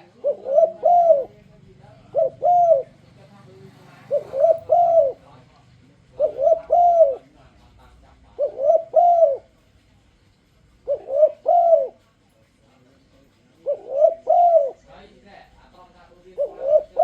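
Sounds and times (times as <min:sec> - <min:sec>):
dove cooing: 0:00.0 - 0:03.2, 0:03.9 - 0:05.4, 0:06.0 - 0:09.6, 0:10.8 - 0:12.2, 0:13.6 - 0:15.0, 0:16.2 - 0:17.0.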